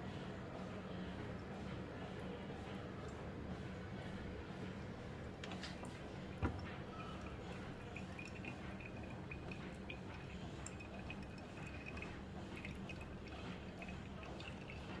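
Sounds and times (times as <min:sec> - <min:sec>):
coffee dripping into cup: 0:05.2 - 0:15.0
espresso machine hum: 0:06.4 - 0:15.0.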